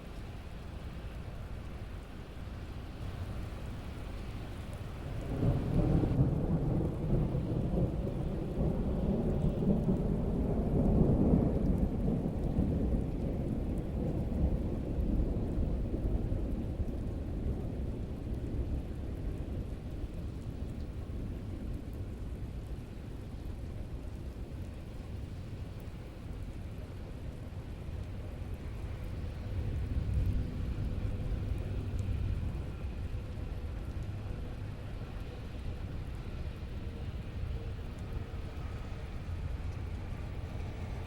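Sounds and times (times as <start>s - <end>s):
steady rain: 0.0s - 41.0s
deep roll of thunder: 5.2s - 18.9s.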